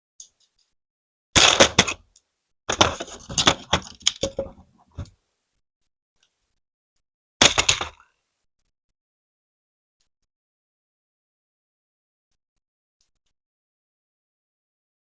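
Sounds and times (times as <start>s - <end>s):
plastic bricks clattering: 2.7s - 5.1s, 7.4s - 8.0s.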